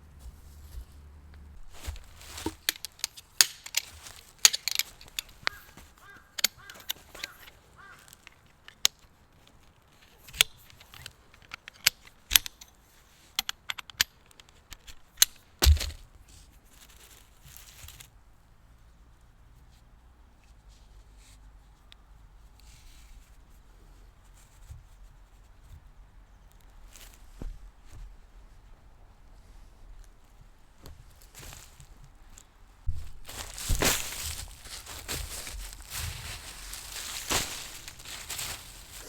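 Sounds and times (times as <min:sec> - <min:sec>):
gear clicking and clinking: 0:01.6 - 0:09.0, 0:32.3 - 0:39.0
heavy thump: 0:32.9 - 0:38.7.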